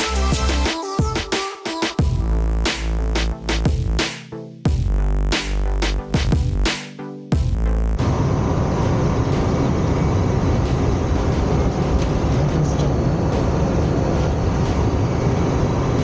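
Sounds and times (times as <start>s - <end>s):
music track: 6.1s - 16.0s
airflow rushing around cockpit: 8.0s - 16.0s.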